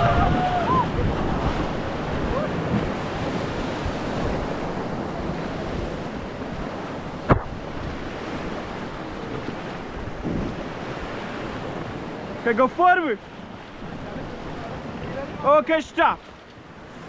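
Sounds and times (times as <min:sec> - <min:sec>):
wind noise on microphone: 0:00.0 - 0:12.4
rushing river water: 0:00.0 - 0:17.0
sharp knock: 0:07.3 - 0:07.6.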